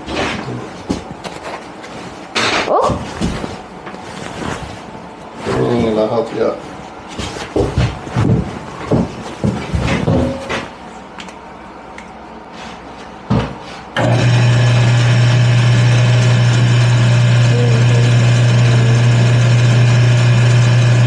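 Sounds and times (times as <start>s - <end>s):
wood lathe motor humming: 14.0s - 21.0s.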